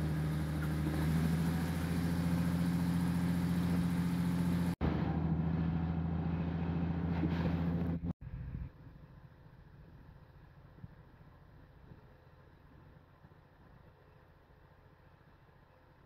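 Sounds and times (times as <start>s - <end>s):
train engine drone: 0.0s - 9.7s.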